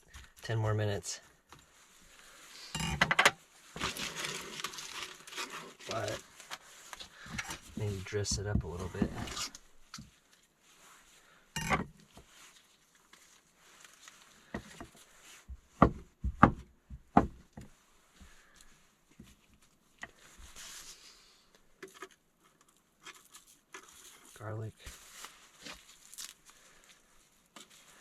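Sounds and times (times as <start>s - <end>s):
utensils and containers clattering: 2.8s - 3.3s.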